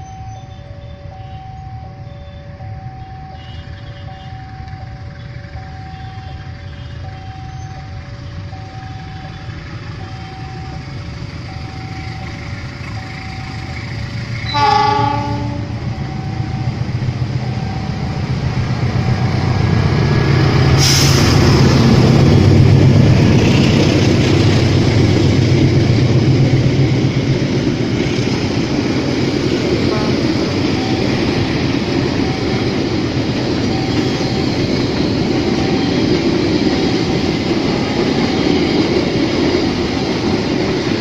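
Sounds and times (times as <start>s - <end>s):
diesel train passing: 0.0s - 41.0s
two-tone crossing warning signal: 0.0s - 41.0s
train horn blast: 14.4s - 16.0s, 29.8s - 30.8s.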